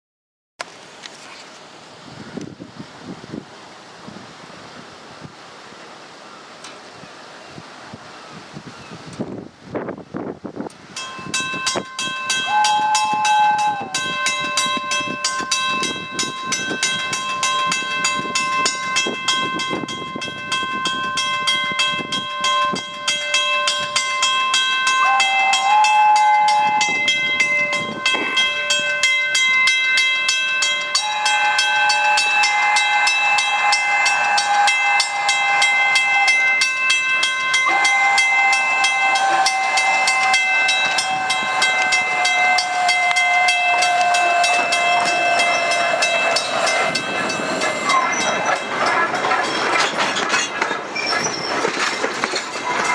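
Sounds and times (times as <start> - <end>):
steam locomotive chuffing: 10.9 - 52.9
steady ringing tones: 11.0 - 50.9
steam whistle blasts: 11.8 - 20.0, 24.8 - 29.1, 30.7 - 48.9
hissing steam: 37.6 - 51.6.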